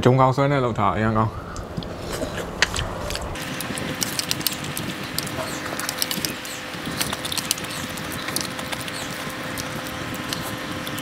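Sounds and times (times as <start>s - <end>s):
chewing noodles: 1.8s - 11.0s.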